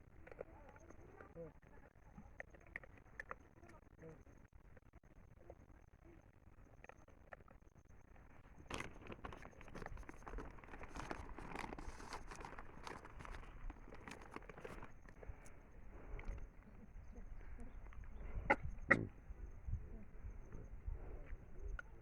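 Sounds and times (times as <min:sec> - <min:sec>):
monkey chewing corn: 0:00.0 - 0:05.2, 0:06.6 - 0:16.8.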